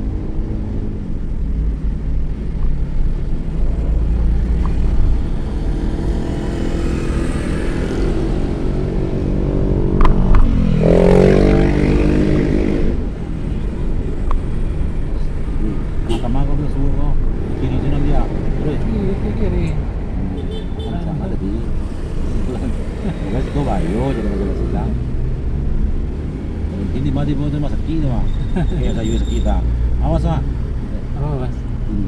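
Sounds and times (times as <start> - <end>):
low rumble: 0.0 - 6.2
engine pitch dropping and climbing: 0.0 - 20.4
vehicle engines in traffic: 0.0 - 32.0.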